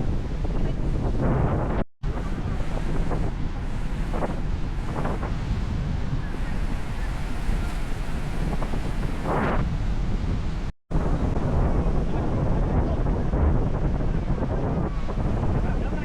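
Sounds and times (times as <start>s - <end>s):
waves washing: 0.0s - 11.4s
wind buffeting the microphone: 0.0s - 16.0s.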